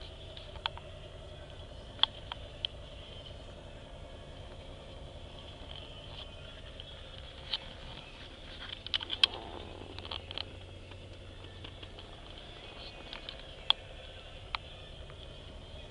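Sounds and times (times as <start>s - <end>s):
car engine idling: 0.0s - 15.9s
sharp clicks: 1.5s - 2.8s, 8.7s - 15.2s.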